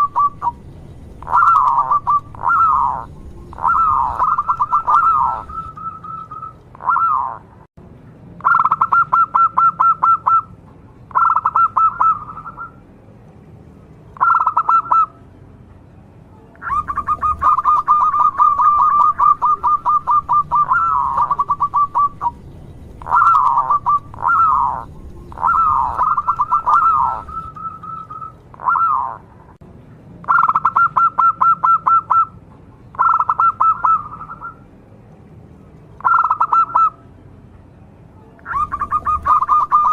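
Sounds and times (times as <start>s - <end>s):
dove cooing: 0.0s - 0.6s, 1.2s - 7.4s, 11.1s - 12.8s, 14.2s - 15.1s, 16.6s - 22.4s, 23.0s - 29.3s, 33.0s - 34.6s, 36.0s - 37.0s, 38.5s - 39.9s.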